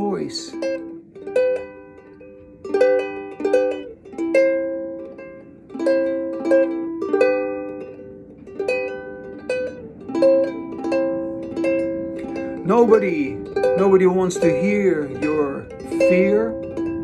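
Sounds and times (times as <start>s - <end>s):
acoustic guitar strumming chords: 10.4s - 17.0s.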